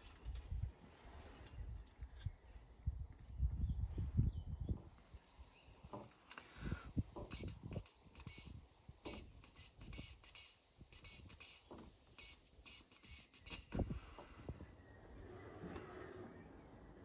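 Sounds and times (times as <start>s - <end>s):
deer call squeaks: 7.3s - 13.7s.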